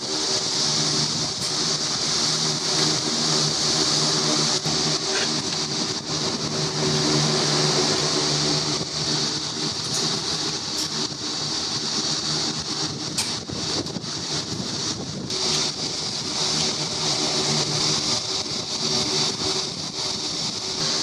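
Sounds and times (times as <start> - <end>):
machine motor hum: 0.0 - 21.0
strong high hiss: 0.0 - 21.0.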